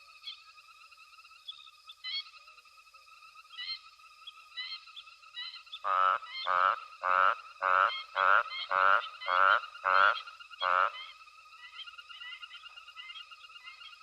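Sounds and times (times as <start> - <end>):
frog chorus: 0.0 - 14.0
frog croaking loudly: 5.8 - 11.2.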